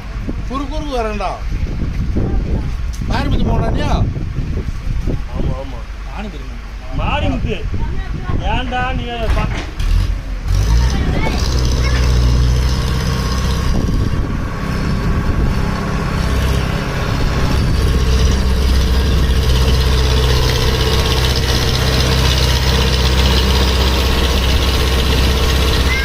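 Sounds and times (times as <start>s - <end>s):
tractor diesel engine running hard: 9.9s - 26.0s.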